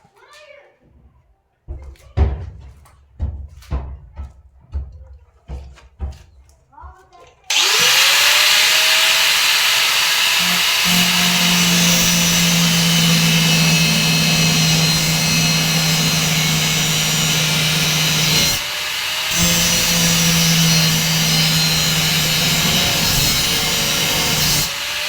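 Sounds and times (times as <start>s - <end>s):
power tool running: 7.5s - 25.0s.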